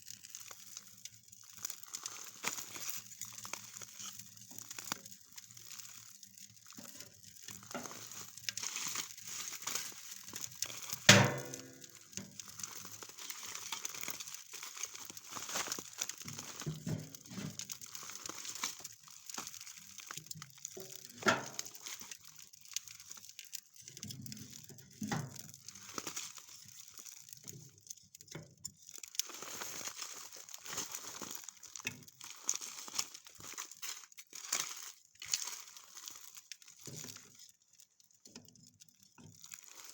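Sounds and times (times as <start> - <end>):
crinkling and crunching of gear: 0.0 - 39.9.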